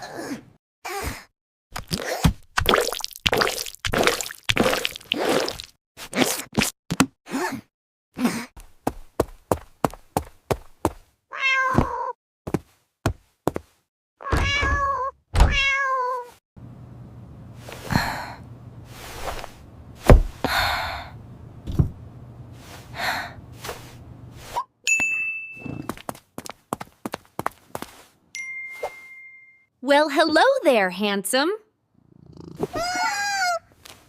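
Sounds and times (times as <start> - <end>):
cat meowing: 11.3 - 12.1, 14.2 - 16.3, 32.6 - 33.6
light knocks and thunks: 20.0 - 20.5, 21.6 - 22.0
dull thuds: 20.0 - 20.6
bright ding: 24.9 - 26.0, 28.4 - 29.7.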